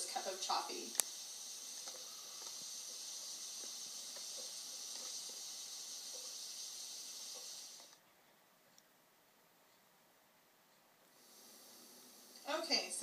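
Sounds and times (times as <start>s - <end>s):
coffee maker gurgles: 0.0s - 8.0s, 11.1s - 13.0s
coffee maker hissing steam: 0.0s - 8.0s, 11.1s - 13.0s.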